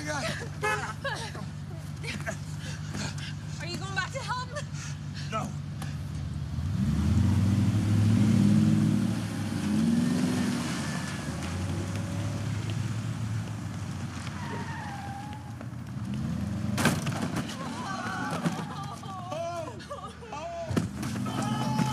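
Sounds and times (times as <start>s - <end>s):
suv engine revving: 5.6s - 17.4s.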